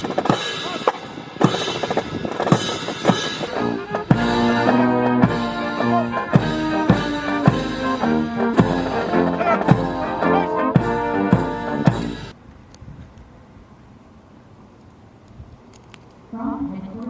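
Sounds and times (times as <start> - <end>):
brass band playing a march: 0.0 - 12.4
steady drum beat: 0.0 - 12.4.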